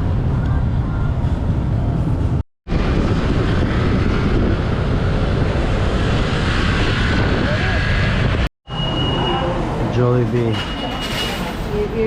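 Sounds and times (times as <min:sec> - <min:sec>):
wind buffeting microphone: 0:00.0 - 0:08.5.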